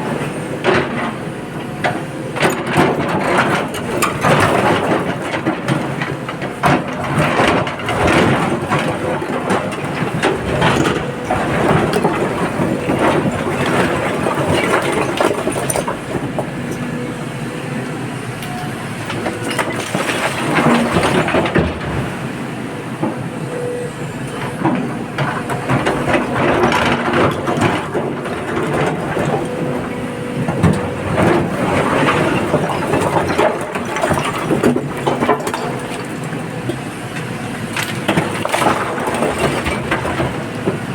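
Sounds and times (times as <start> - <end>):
heavy machinery engine noise: 0.0 - 40.9
rock clattering into truck: 25.3 - 36.4.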